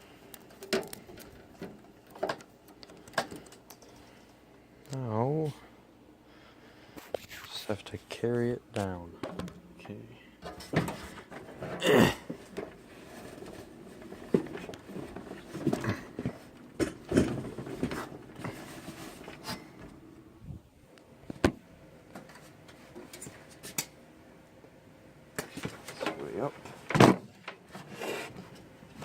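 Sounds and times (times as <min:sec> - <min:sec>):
computer case knocks and rustling: 0:10.5 - 0:12.7, 0:13.3 - 0:19.4, 0:26.8 - 0:27.5.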